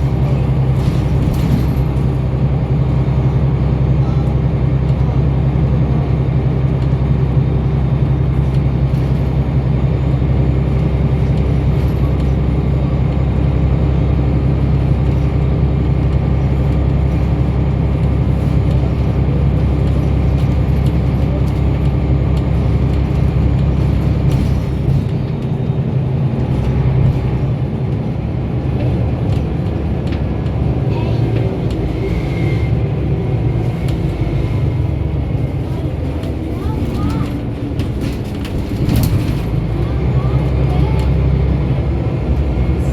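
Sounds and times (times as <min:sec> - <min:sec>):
bus diesel engine droning: 0:00.0 - 0:42.9
tyre and road noise: 0:00.0 - 0:42.9.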